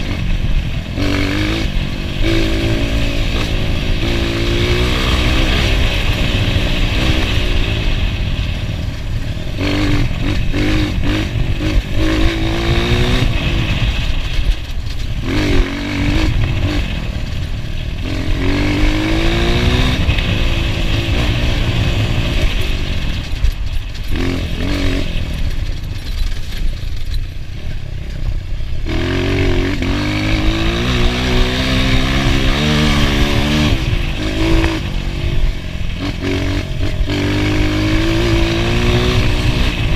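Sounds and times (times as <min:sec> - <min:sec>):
motorcycle engine revving: 0:00.0 - 0:39.9
motorcycle clattering over rough ground: 0:22.4 - 0:28.9.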